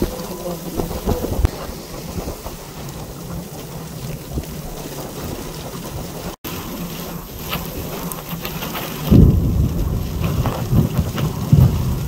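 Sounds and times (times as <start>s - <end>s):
heavy rain pouring: 0.0s - 12.0s
low rumble: 9.1s - 12.0s.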